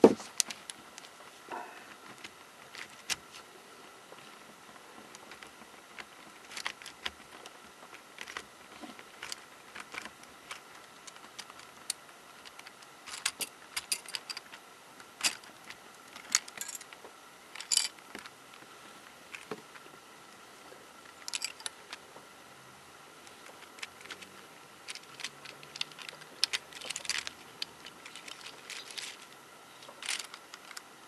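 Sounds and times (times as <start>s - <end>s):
plastic puzzle pieces clicking: 5.2s - 14.6s, 23.3s - 30.9s.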